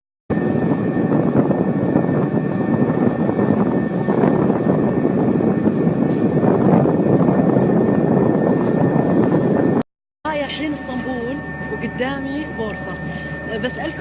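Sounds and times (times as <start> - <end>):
car ferry engines rumbling: 0.3 - 14.0
thin steady whine: 0.3 - 14.0
wind on microphone: 0.3 - 14.0.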